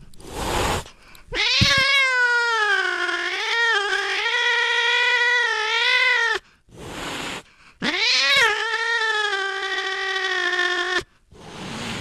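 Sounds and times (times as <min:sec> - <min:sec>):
cat hissing: 0:00.2 - 0:02.1, 0:06.2 - 0:12.0
cat yowling: 0:01.3 - 0:06.4, 0:07.8 - 0:11.0.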